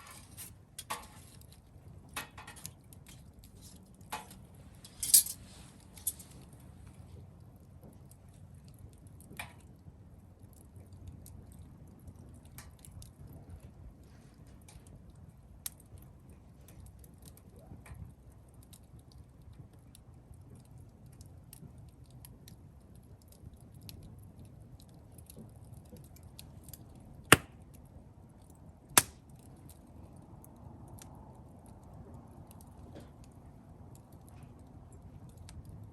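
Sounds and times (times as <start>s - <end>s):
campfire crackling: 0.0s - 35.9s
loud sharp pops: 27.3s - 27.6s, 29.0s - 29.2s.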